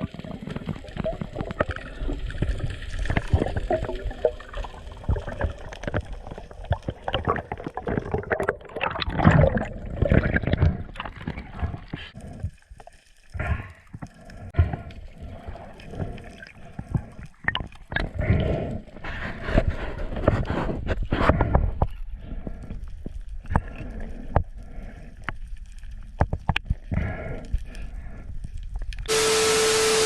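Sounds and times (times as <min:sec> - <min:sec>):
water sloshing and splashing: 0:00.0 - 0:21.1.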